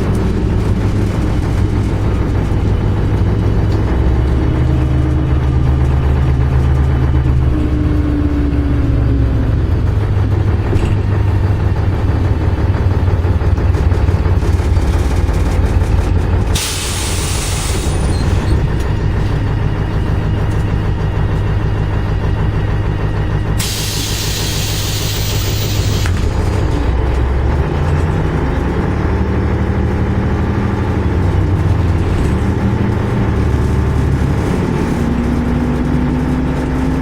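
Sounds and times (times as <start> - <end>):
bus diesel engine droning: 0.0 - 37.0
compressed air hiss: 23.6 - 26.1.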